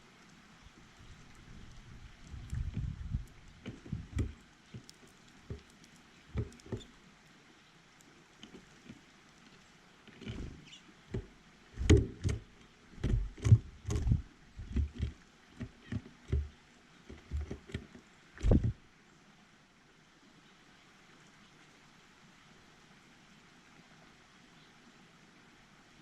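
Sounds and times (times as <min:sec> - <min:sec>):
knocks and thumps: 0:06.3 - 0:06.9, 0:10.2 - 0:16.5, 0:17.1 - 0:18.8.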